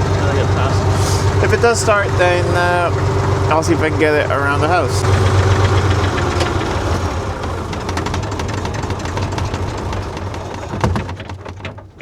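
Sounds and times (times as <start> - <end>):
sharp clicks and rattles: 0.0 - 12.0
tractor engine droning: 0.0 - 12.0
loud knock: 7.7 - 12.0.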